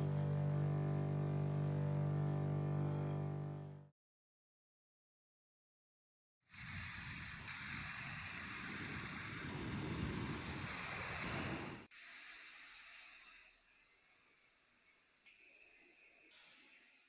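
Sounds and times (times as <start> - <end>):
spraying hiss: 6.5 - 17.0.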